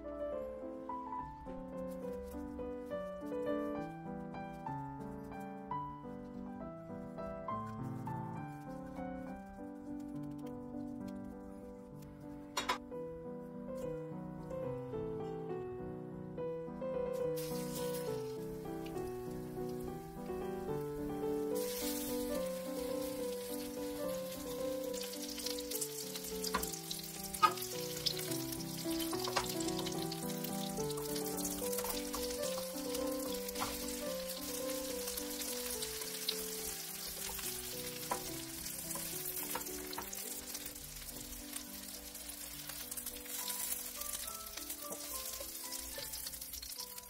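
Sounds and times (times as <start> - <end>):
background music with melody: 0.0 - 47.0
oil sizzling in a frying pan: 17.2 - 47.0.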